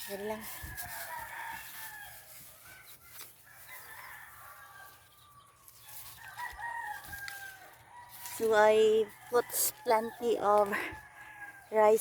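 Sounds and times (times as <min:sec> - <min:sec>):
rooster crowing: 0:00.0 - 0:02.4, 0:03.4 - 0:05.5, 0:06.2 - 0:08.3, 0:10.9 - 0:11.7.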